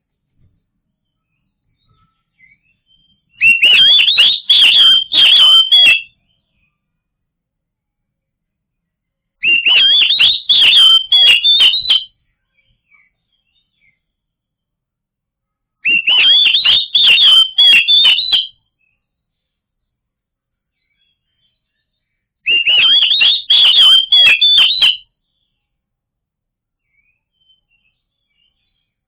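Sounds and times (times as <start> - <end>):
bird singing whistled notes: 1.0 - 6.7, 9.4 - 14.1, 15.8 - 19.1, 20.8 - 25.5, 26.8 - 29.0.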